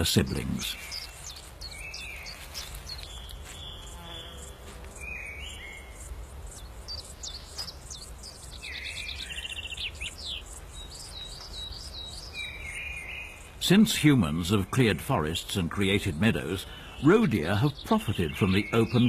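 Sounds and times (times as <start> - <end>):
bird trill: 0.0 - 14.9
songbirds chirping and whistling: 0.0 - 19.0.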